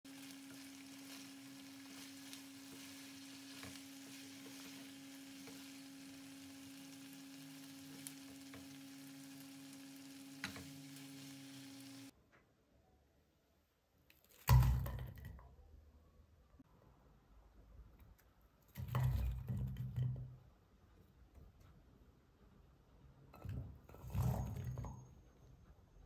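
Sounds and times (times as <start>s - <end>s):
vegetables sizzling in a wok: 0.0s - 12.1s.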